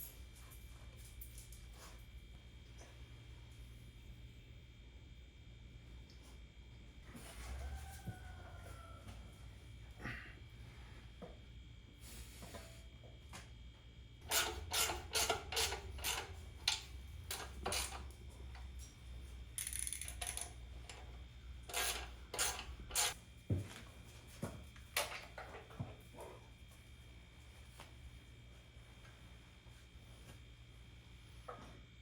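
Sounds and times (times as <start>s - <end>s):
low steady hum: 0.0s - 32.0s
metallic clicks and clanks of tools: 14.2s - 19.0s, 19.6s - 23.2s.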